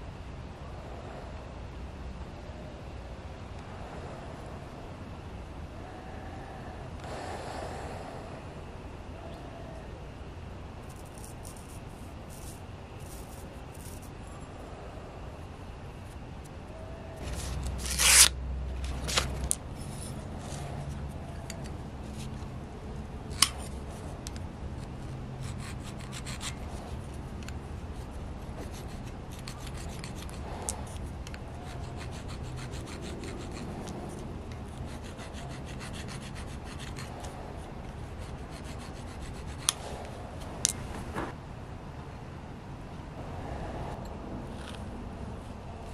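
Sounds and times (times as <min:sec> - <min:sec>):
knife rubbing on sharpening stone: 0:17.2 - 0:18.3.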